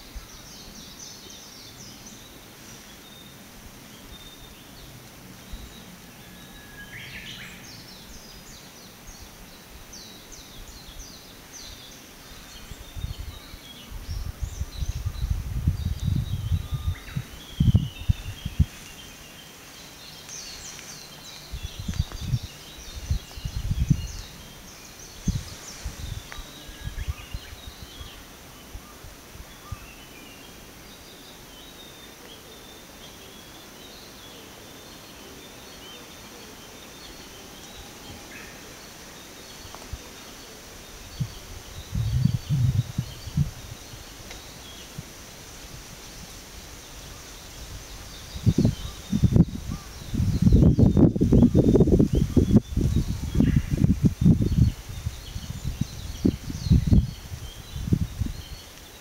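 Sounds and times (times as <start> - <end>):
small birds chirping: 0.0 - 59.0
wind rumble on microphone: 6.9 - 19.2, 20.3 - 30.0, 40.8 - 59.0.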